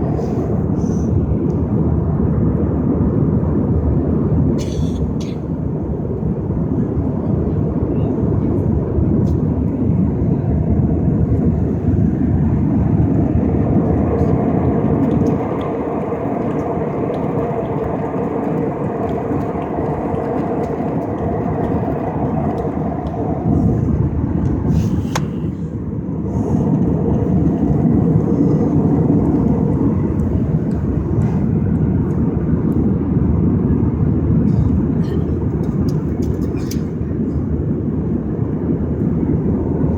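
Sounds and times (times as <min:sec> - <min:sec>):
airliner cabin noise: 0:00.0 - 0:39.9.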